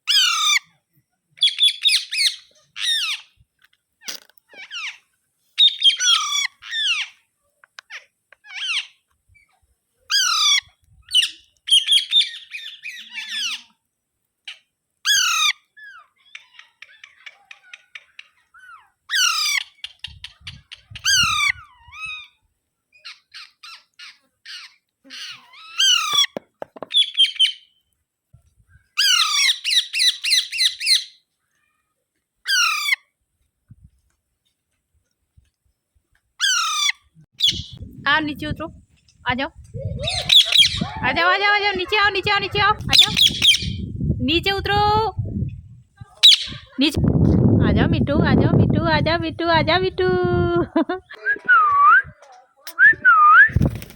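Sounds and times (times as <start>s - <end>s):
parakeet squawking: 36.4s - 37.8s, 40.0s - 43.9s, 46.2s - 46.8s.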